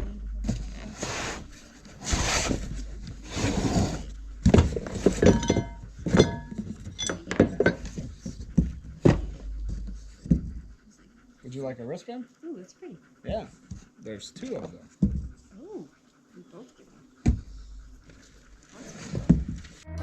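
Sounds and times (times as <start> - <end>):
metal parts knocking and clinking: 4.4 - 8.2.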